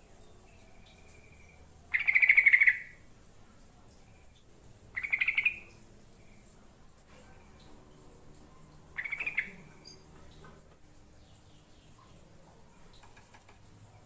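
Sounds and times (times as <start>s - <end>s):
bird singing rapid phrases: 0.2s - 3.0s, 5.0s - 6.4s, 8.9s - 10.4s.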